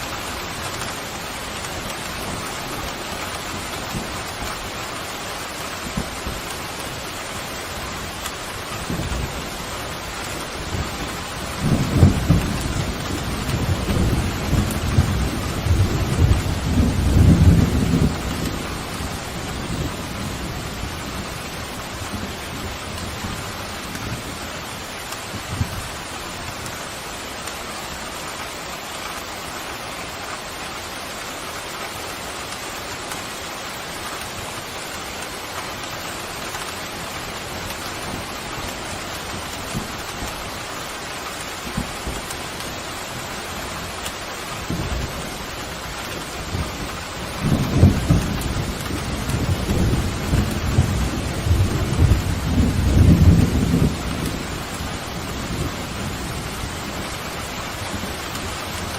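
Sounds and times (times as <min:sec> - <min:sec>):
heavy rain falling: 0:00.0 - 0:58.9
thunder rumbling: 0:08.6 - 0:26.0, 0:41.6 - 0:58.9.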